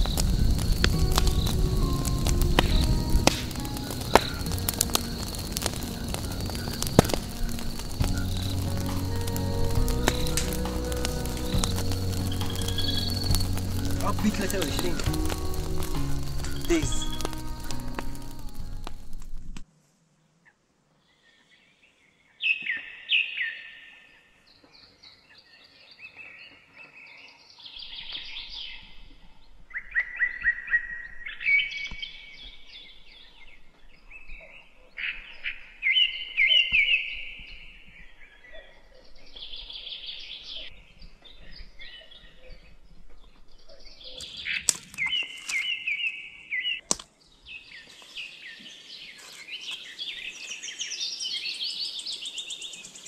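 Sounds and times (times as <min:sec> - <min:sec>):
wild birds singing: 0:00.0 - 0:19.2, 0:20.2 - 0:53.0.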